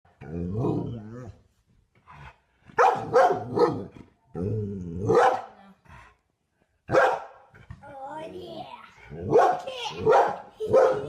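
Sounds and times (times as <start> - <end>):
dog barking: 2.8 - 3.9, 5.1 - 5.6, 6.9 - 7.4, 9.2 - 11.0.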